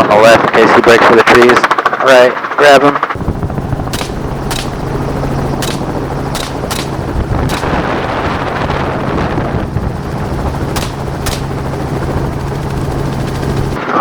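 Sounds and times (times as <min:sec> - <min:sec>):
helicopter engine and rotor drone: 0:01.7 - 0:14.0
gunshots: 0:03.2 - 0:09.5, 0:10.6 - 0:13.8.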